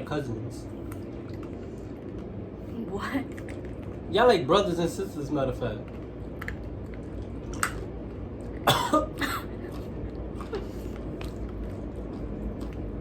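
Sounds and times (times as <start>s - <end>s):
person coughing: 8.6s - 9.8s.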